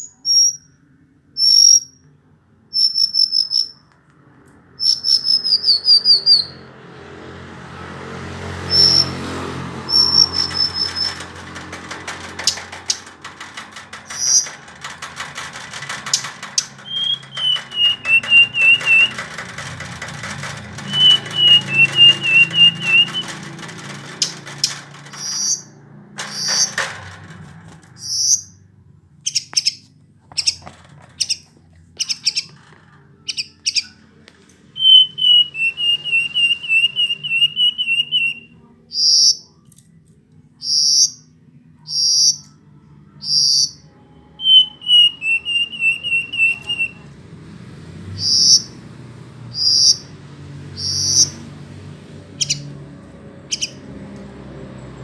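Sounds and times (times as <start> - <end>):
bird singing wavering trills: 44.4 - 47.0.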